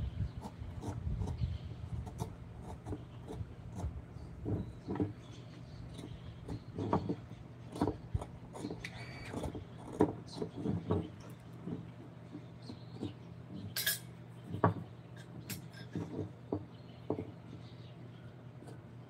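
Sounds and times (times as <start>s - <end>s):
hand tools tapping and clinking: 12.7s - 17.4s.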